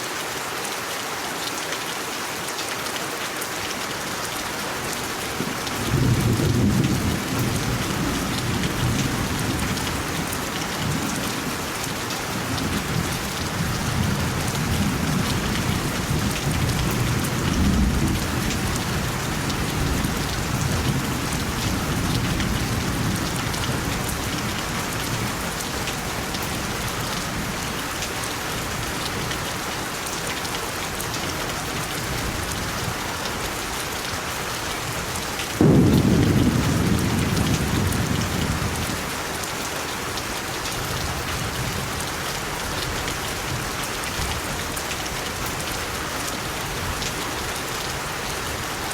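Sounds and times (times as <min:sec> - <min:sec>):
rain hissing: 0:34.9 - 0:44.7
thunder rumbling: 0:35.6 - 0:39.1.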